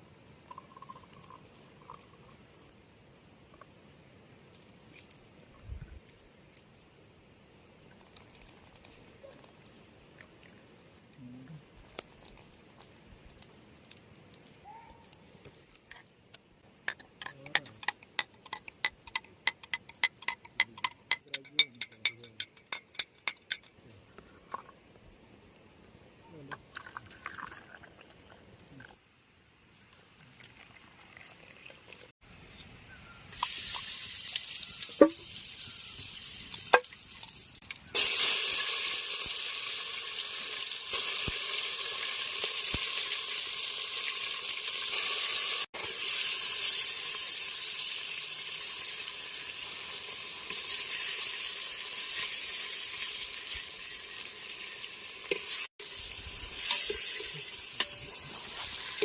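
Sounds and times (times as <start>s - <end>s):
food sizzling in a pan: 33.3s - 59.0s.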